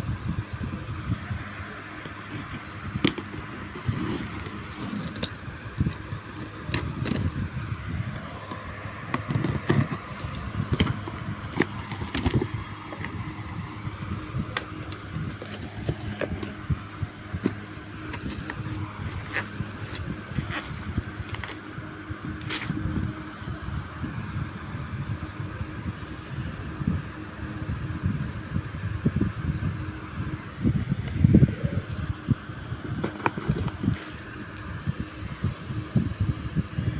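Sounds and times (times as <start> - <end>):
low background hum: 0.0 - 36.9
sharp clicks and crackles: 1.3 - 13.3
packaging rustling and crinkling: 1.4 - 22.8, 32.8 - 34.6.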